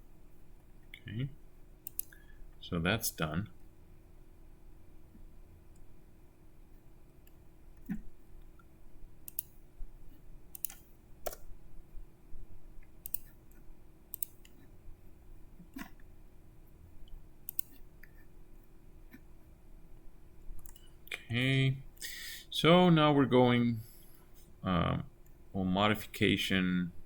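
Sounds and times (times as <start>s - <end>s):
faint steady hum: 0.0s - 27.0s
computer mouse clicks: 1.8s - 2.2s, 8.6s - 9.6s, 10.5s - 11.5s, 12.9s - 14.7s, 17.4s - 18.2s, 20.6s - 20.9s.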